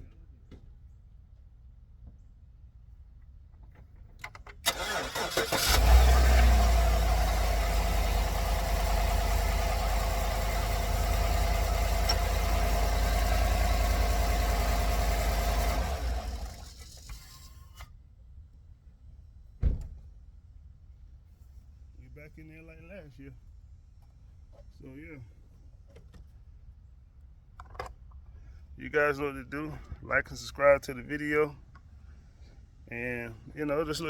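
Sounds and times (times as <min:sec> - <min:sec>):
truck starter cranking: 0:04.2 - 0:17.6
truck engine idling: 0:04.7 - 0:17.2.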